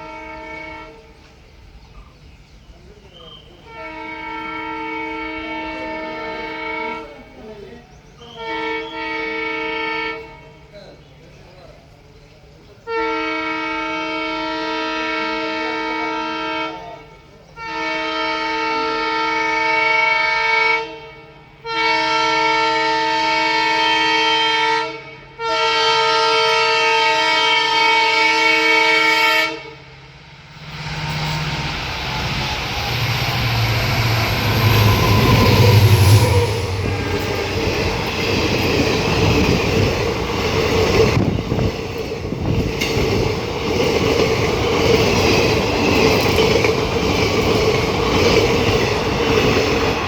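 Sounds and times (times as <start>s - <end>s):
locomotive horn blasts: 0.0s - 1.2s, 3.6s - 7.4s, 8.3s - 10.7s, 12.8s - 29.9s, 33.7s - 41.4s
train wheels on rails: 0.8s - 9.3s, 26.4s - 50.0s.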